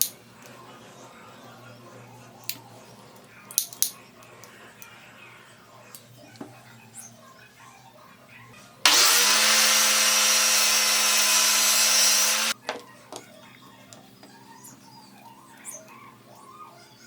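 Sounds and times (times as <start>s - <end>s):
electric power tool spinning: 8.9s - 12.6s.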